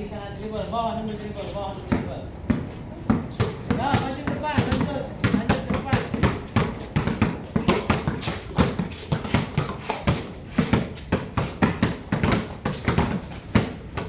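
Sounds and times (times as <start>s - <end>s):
basketballs bouncing on hard court: 1.9s - 14.0s.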